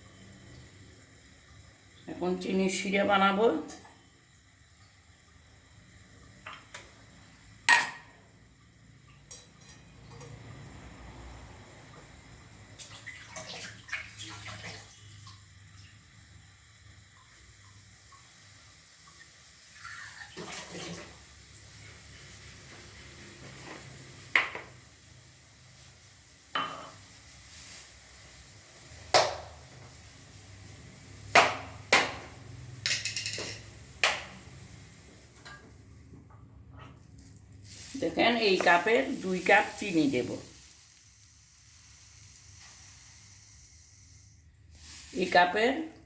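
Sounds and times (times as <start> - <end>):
pots and utensils clanking: 7.7 - 8.2, 9.2 - 10.4, 26.6 - 27.0, 32.8 - 33.8
water running: 12.7 - 23.4, 37.7 - 41.4.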